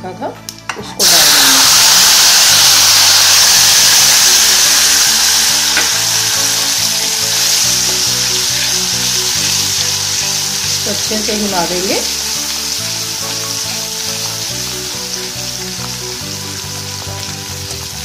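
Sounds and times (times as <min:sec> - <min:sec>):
paste sizzling in hot oil: 0:01.0 - 0:18.0.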